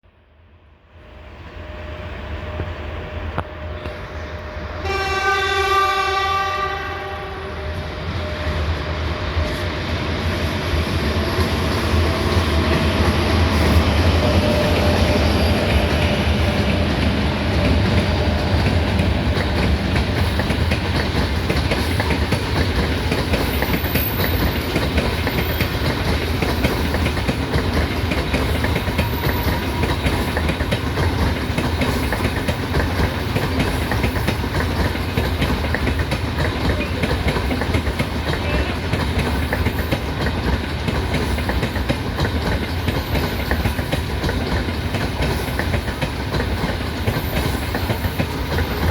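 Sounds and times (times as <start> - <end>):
train wheels clattering over rail joints: 10.3 - 48.9.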